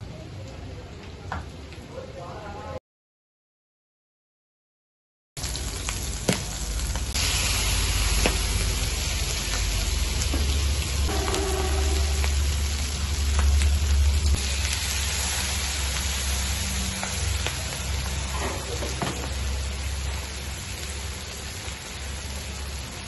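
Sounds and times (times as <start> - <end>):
food sizzling in oil: 5.4 - 23.0
low rumble: 6.7 - 18.3.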